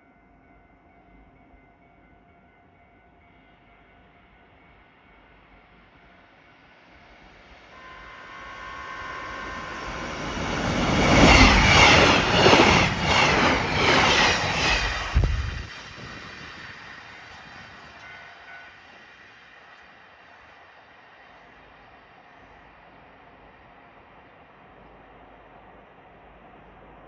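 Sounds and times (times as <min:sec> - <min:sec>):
train wheels rushing on rail: 0:05.2 - 0:23.0
rhythmic clickety-clack: 0:10.0 - 0:16.5.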